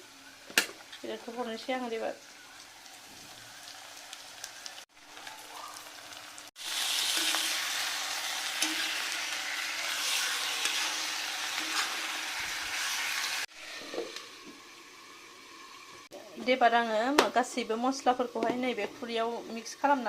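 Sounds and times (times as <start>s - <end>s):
meat sizzling in hot oil: 0.0s - 18.3s.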